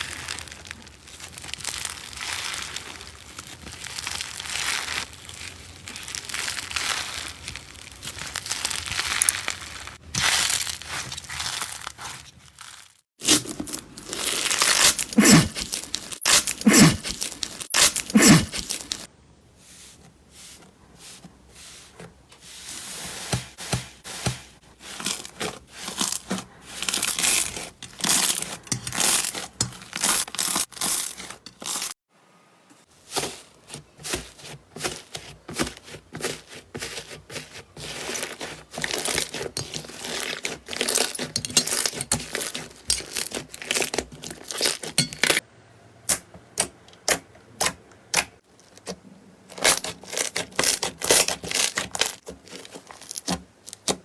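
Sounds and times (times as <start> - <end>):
slime crackling and popping: 0.0 - 19.1, 49.6 - 54.0.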